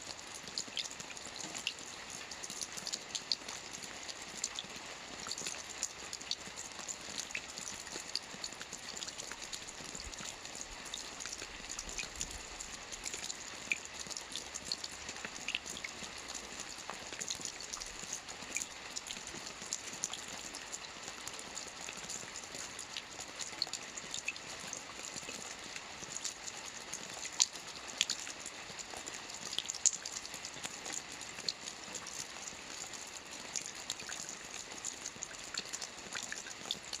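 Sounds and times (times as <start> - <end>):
raindrops ticking on a surface: 0.0 - 37.0
steady rain hiss: 0.0 - 37.0.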